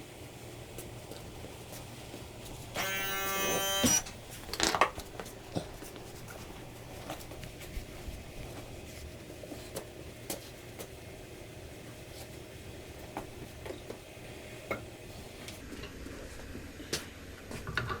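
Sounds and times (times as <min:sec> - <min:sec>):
workshop tool whine: 0:02.8 - 0:04.3.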